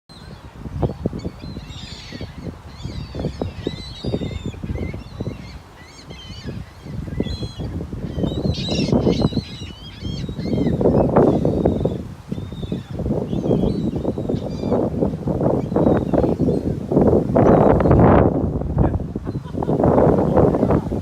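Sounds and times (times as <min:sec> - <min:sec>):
flock of birds calling: 0:00.1 - 0:14.9
wind buffeting microphone: 0:00.1 - 0:21.0.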